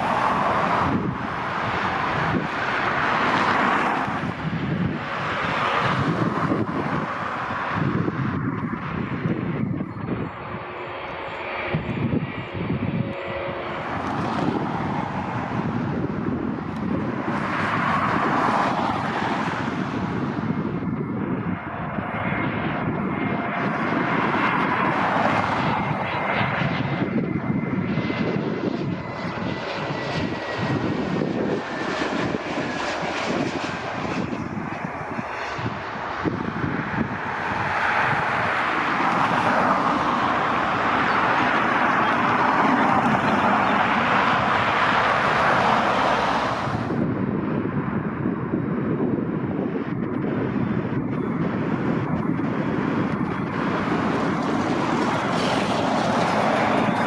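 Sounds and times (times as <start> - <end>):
high jet engine whine: 0.0 - 57.0
jet engine rumble: 0.0 - 57.0.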